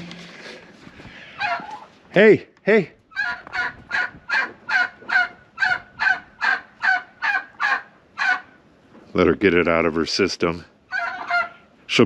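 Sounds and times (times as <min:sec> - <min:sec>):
turkey calling: 0:00.1 - 0:02.0, 0:03.1 - 0:08.7, 0:10.8 - 0:11.8.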